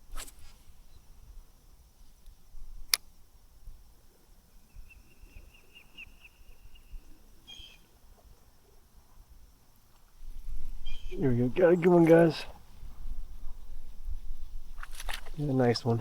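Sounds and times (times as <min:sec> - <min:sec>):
sharp click: 0:02.9 - 0:03.1
high bird chirps: 0:04.7 - 0:07.9, 0:10.7 - 0:11.3.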